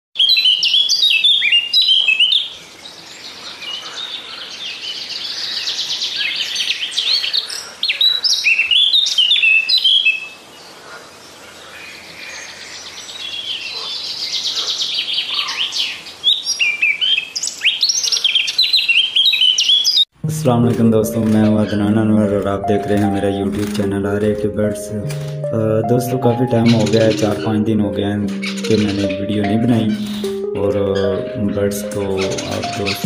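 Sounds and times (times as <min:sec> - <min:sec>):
cage birds chirping and twittering: 0:00.2 - 0:20.1, 0:28.3 - 0:33.0.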